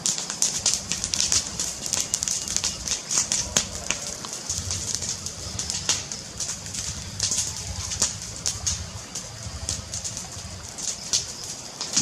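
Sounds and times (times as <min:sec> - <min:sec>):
fire crackling: 0:00.0 - 0:12.0
low rumble: 0:00.4 - 0:11.5.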